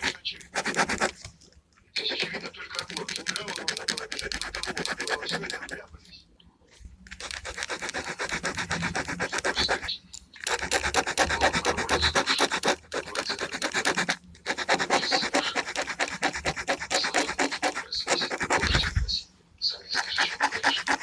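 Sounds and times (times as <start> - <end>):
pen scratching on paper: 0.0 - 1.4, 2.0 - 5.9, 7.1 - 21.0.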